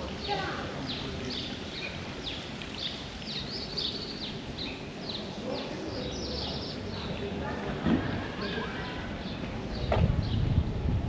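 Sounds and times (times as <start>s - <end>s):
birds chirping: 0.0s - 7.4s
low background noise: 0.0s - 11.0s.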